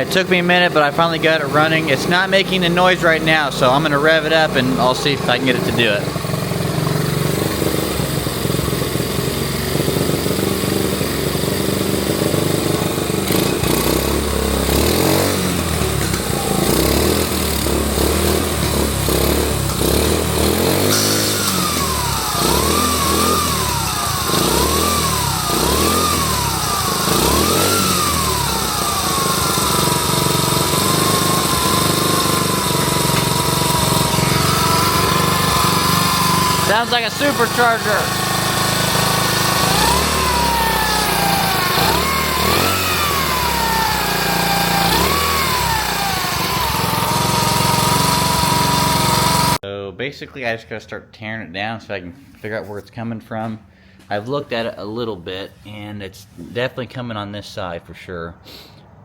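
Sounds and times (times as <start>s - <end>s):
high mechanical whine: 0.0s - 11.4s, 20.7s - 49.6s
small motorcycle engine revving: 0.0s - 49.6s.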